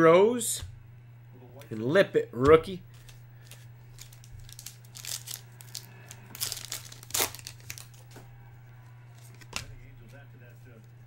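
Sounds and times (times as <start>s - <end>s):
trading cards crinkling and rustling: 2.8s - 8.3s, 9.1s - 11.0s.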